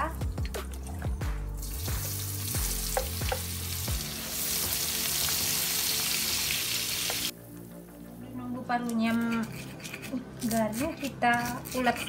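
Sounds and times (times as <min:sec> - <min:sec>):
meat sizzling in hot oil: 0:01.6 - 0:07.3
spatula knocking and scraping pan: 0:02.9 - 0:03.5.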